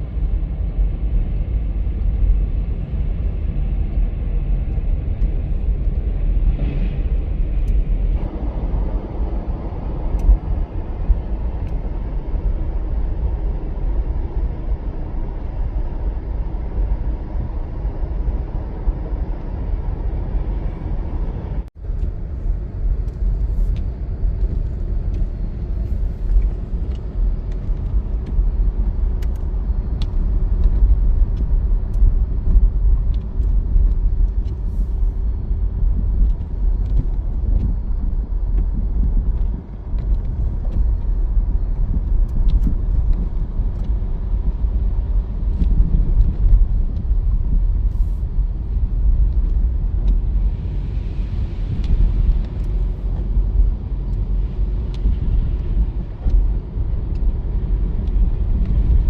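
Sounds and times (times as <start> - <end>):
blizzard wind rumble: 0.0 - 59.0
street noise: 0.0 - 59.0.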